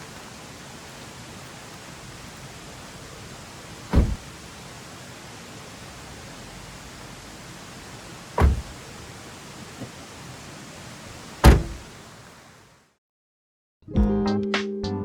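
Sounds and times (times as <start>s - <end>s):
steady hiss: 0.0s - 12.9s
heavy dull thumps: 3.9s - 4.3s, 8.4s - 8.8s, 11.4s - 11.8s.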